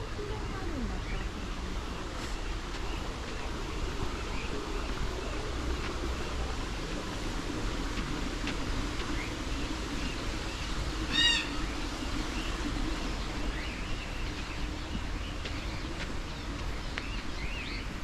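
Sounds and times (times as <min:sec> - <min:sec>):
steady low hum: 0:00.0 - 0:18.0
loud bird call: 0:11.1 - 0:11.6.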